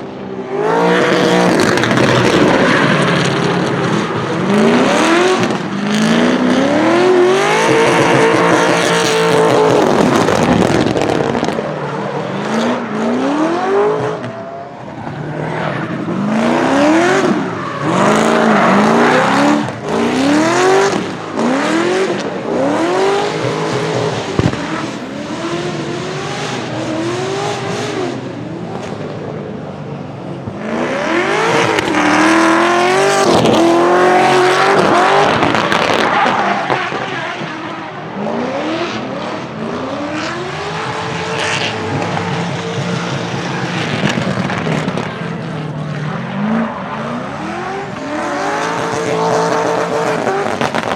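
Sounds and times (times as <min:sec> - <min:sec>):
car engine revving: 0:00.0 - 0:29.7, 0:30.4 - 0:50.9.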